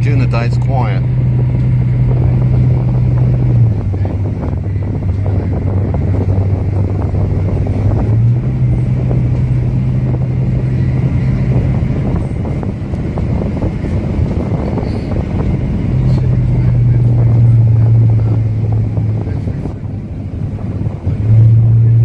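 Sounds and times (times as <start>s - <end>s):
bus engine running: 0.0s - 22.0s
road noise: 0.0s - 22.0s.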